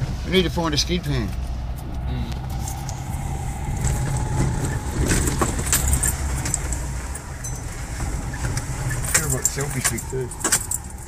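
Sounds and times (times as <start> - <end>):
engine and tyre rumble: 0.0 - 11.0.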